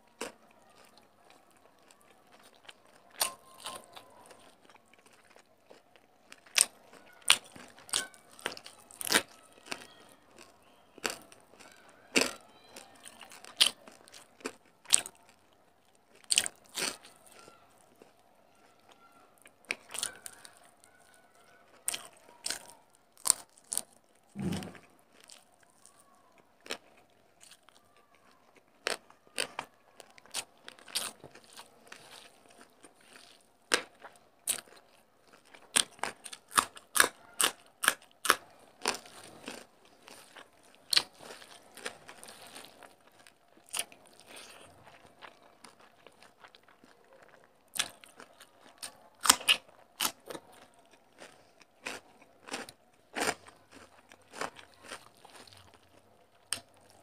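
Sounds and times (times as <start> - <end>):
person chewing crisp food: 0.1 - 57.0
dull thump: 24.4 - 24.8.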